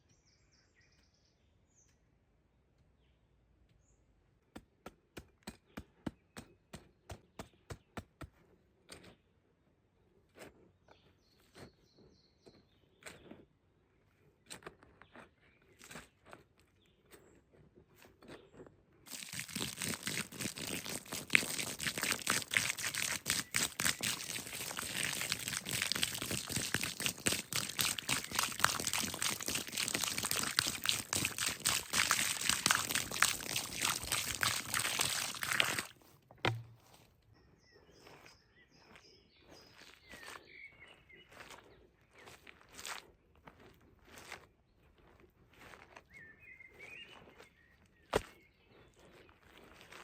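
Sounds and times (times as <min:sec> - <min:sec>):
dry material crackling: 0:19.1 - 0:36.8.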